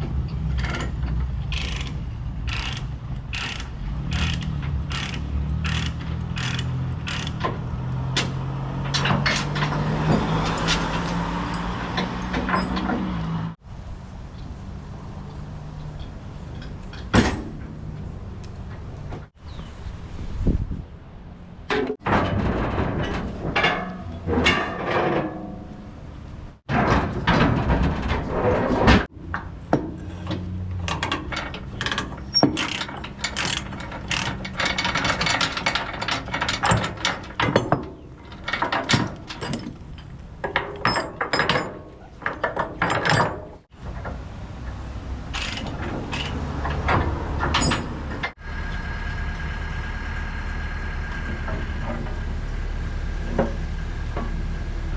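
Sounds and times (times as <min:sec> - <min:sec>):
diesel engine running: 0:00.0 - 0:13.6, 0:43.8 - 0:54.9
excavator bucket scraping rock: 0:00.6 - 0:07.7.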